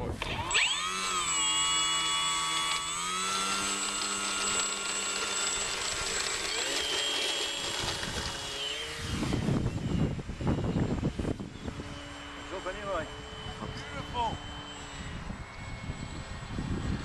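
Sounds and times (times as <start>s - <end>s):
model plane propeller whining: 0.0s - 17.0s
wind buffeting on microphone: 9.0s - 17.0s.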